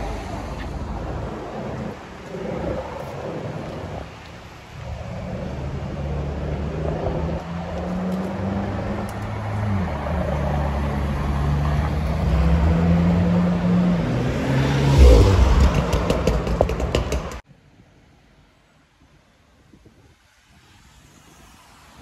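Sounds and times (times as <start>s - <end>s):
sports car engine driving past: 9.7s - 17.2s.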